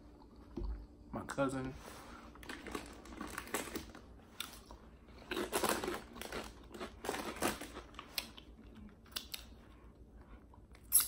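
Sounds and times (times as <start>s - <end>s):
person chewing sandwich: 2.3s - 10.8s.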